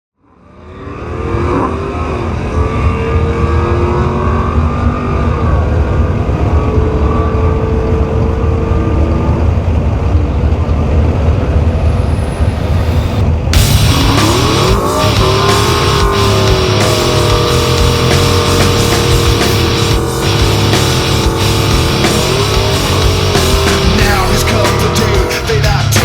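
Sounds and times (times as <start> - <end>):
truck engine rough rumble: 4.6 - 26.0.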